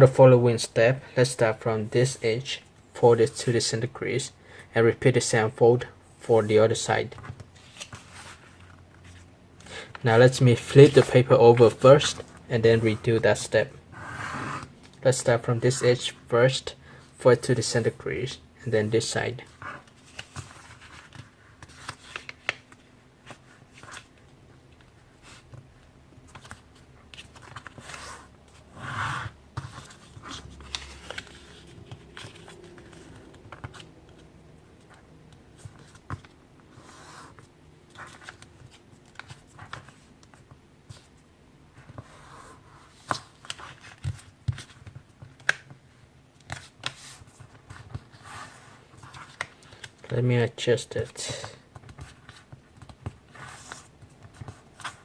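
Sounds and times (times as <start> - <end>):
paper rustling and creasing: 7.1 - 13.5, 18.8 - 24.2, 24.8 - 45.8, 46.4 - 50.2.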